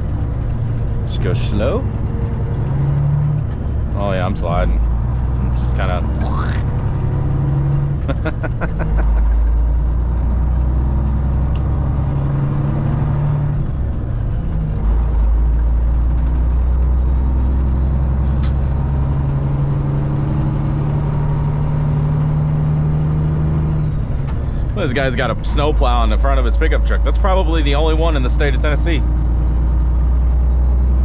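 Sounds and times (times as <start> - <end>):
diesel truck engine droning: 0.0 - 31.0.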